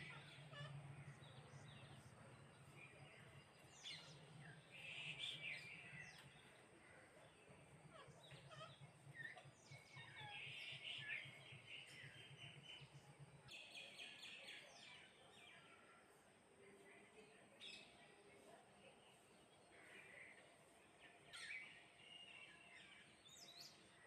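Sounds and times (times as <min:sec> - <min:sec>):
sparrows chirping: 0:00.0 - 0:16.1, 0:16.7 - 0:24.0.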